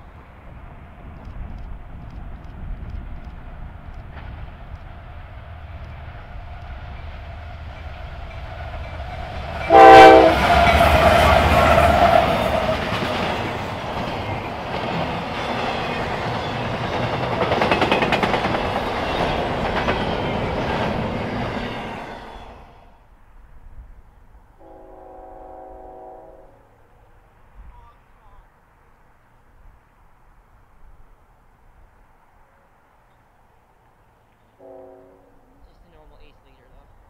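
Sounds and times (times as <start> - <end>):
diesel locomotive rumbling: 0.0 - 37.0
train horn blast: 9.6 - 12.7, 24.6 - 26.8, 34.6 - 36.2
cars rattling over rail joints: 10.4 - 22.7.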